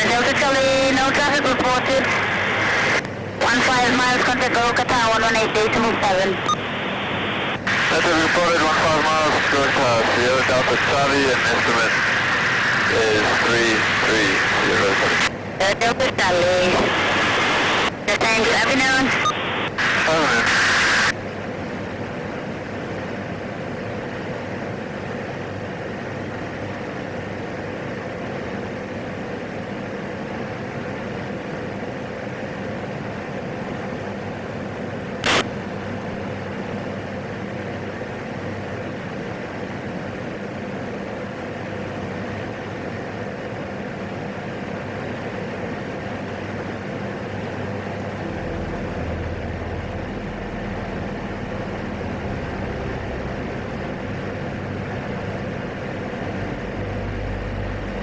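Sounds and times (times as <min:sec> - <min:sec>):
turboprop engine drone: 0:00.0 - 0:58.0
deeper hum: 0:47.7 - 0:50.1.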